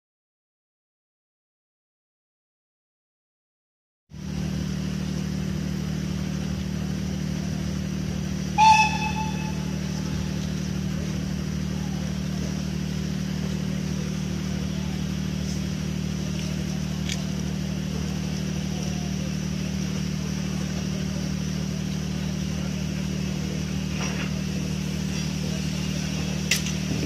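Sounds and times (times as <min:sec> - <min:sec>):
diesel engine idling hum: 0:04.1 - 0:27.0
steam locomotive whistle: 0:08.5 - 0:10.4.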